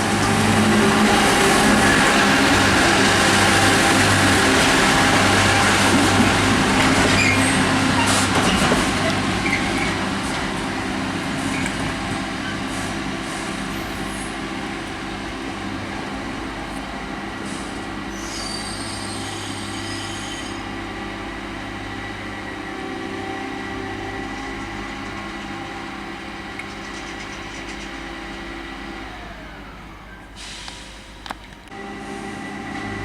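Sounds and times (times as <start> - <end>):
train mechanical drone: 0.0 - 33.0
wheel squeal: 6.8 - 10.0, 18.1 - 20.7.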